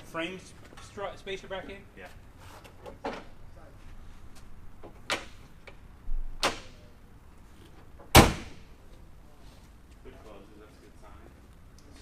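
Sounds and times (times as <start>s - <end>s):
sharp bangs: 8.1s - 8.7s.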